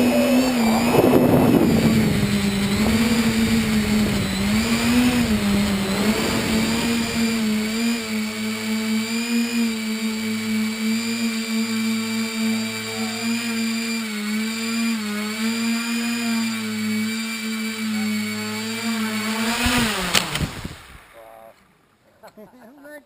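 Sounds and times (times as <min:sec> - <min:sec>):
rough rushing noise: 0:00.0 - 0:13.0
drone motors whining: 0:00.0 - 0:21.6.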